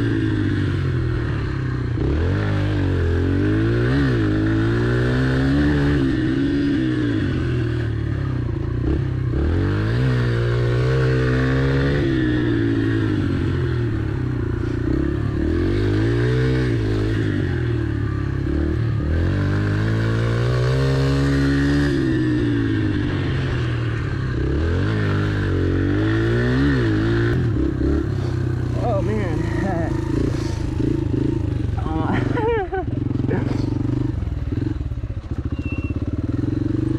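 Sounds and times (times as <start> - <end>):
dirt bike engine revving: 0.0 - 36.9.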